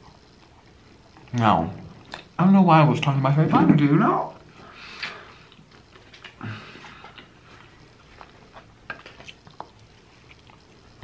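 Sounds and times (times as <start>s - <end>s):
person chewing: 5.0s - 11.0s.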